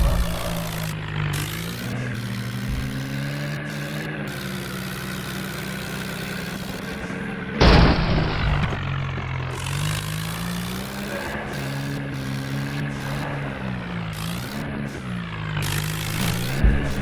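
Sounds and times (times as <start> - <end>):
tractor diesel engine running: 0.0 - 17.0
sudden loud burst of noise: 7.6 - 9.1.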